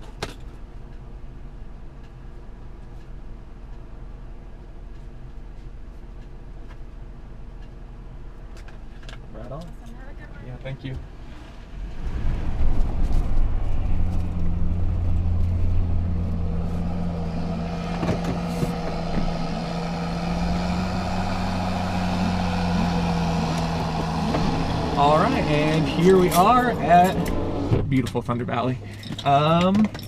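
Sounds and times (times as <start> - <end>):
truck engine drone: 11.1 - 29.2.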